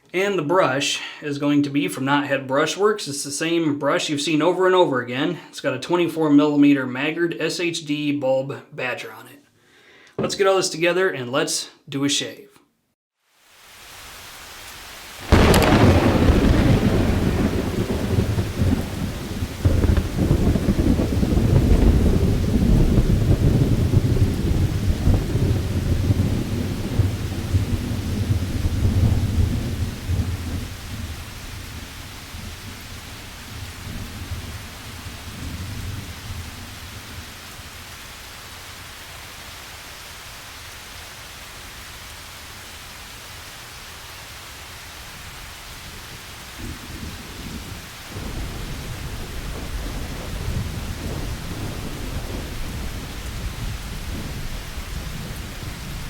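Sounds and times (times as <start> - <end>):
steady rain: 13.2 - 56.0
thunder rolling: 15.2 - 37.2, 48.1 - 56.0.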